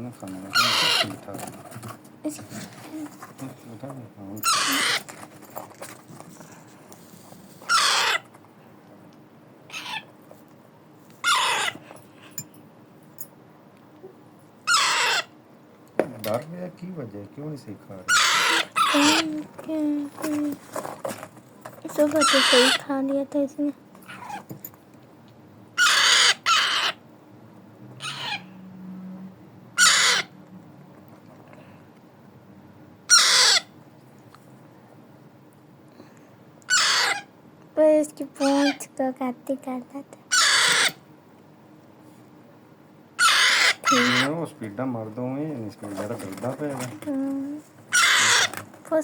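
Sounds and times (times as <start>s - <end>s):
parakeet chick harsh calls: 0.5s - 1.2s, 4.4s - 5.2s, 7.6s - 8.3s, 9.7s - 10.1s, 11.2s - 11.9s, 14.6s - 15.4s, 18.0s - 19.4s, 22.0s - 23.1s, 24.0s - 24.5s, 25.7s - 27.0s, 28.0s - 28.6s, 29.7s - 30.4s, 33.0s - 33.8s, 36.6s - 37.4s, 38.4s - 38.9s, 40.3s - 41.1s, 43.1s - 44.4s, 47.9s - 48.6s
parrot screeching: 0.5s - 1.2s, 4.4s - 5.1s, 7.6s - 8.3s, 9.7s - 10.1s, 11.2s - 11.9s, 14.6s - 15.4s, 18.1s - 19.4s, 22.0s - 22.9s, 24.0s - 24.5s, 25.8s - 27.0s, 28.0s - 28.5s, 29.8s - 30.4s, 33.1s - 33.8s, 36.7s - 37.3s, 38.4s - 38.8s, 40.3s - 41.0s, 43.2s - 44.4s, 47.9s - 48.6s.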